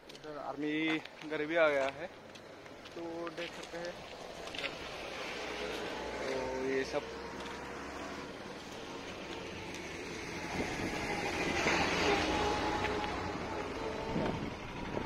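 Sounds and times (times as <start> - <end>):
vehicle engine running: 5.4 - 15.0.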